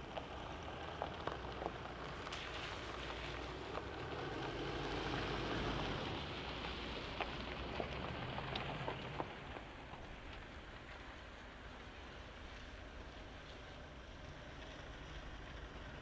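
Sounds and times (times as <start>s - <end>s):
soft even hiss: 0.0s - 16.0s
light ticks: 5.8s - 11.2s.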